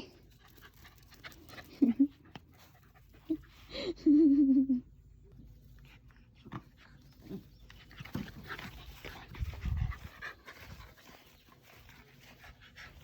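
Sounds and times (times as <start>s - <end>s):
dog panting: 5.8s - 13.0s
scuffling noises: 7.1s - 13.0s.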